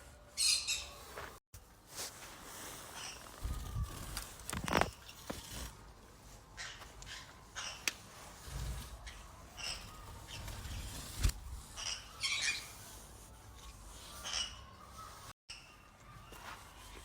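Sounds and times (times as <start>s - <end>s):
parrots chirping and calling: 6.6s - 7.9s, 9.0s - 10.5s, 11.7s - 13.0s, 14.1s - 15.6s.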